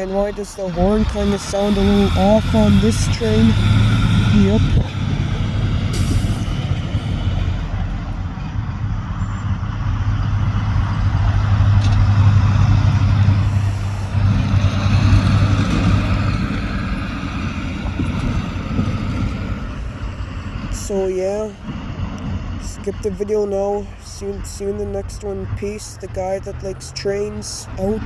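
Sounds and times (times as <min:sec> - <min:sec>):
diesel locomotive engine drone: 0:00.0 - 0:28.0.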